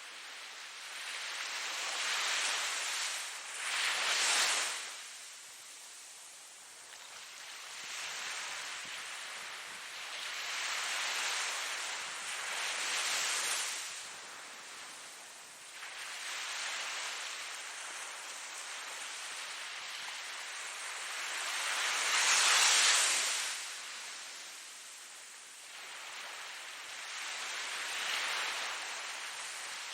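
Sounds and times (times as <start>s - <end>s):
ocean waves breaking on shore: 0.0s - 29.9s.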